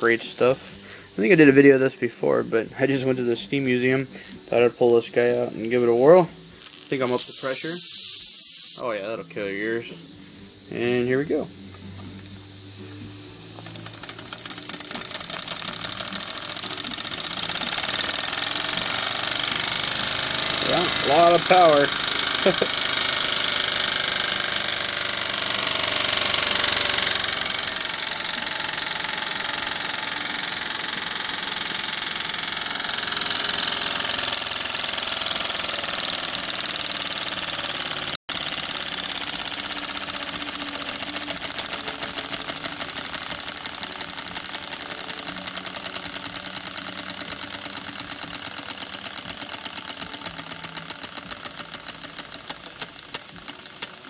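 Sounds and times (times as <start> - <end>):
steam engine hissing and puffing: 12.8 - 54.0.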